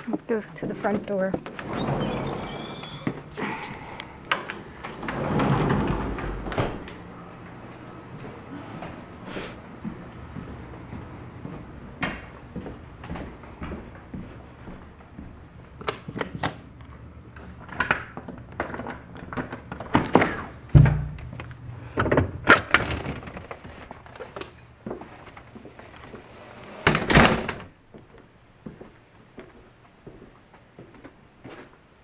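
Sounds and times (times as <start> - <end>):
noisy clatter: 17.4 - 24.6
heavy thump: 20.7 - 21.4.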